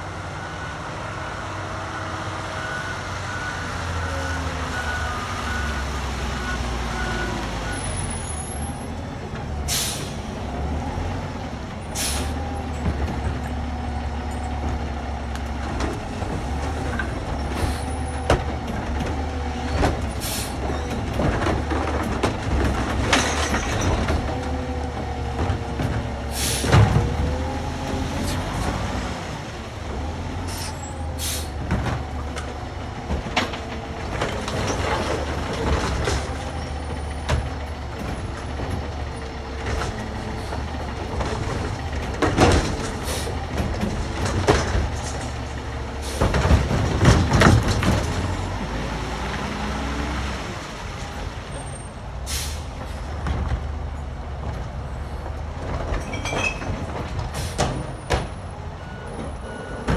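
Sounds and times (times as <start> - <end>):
air brake hisses: 9.7 - 10.2, 12.0 - 12.4, 20.2 - 20.6, 26.3 - 26.7, 30.5 - 31.5, 52.3 - 52.7
loud clanks and thumps: 11.7 - 29.2, 29.8 - 50.2, 52.3 - 59.9.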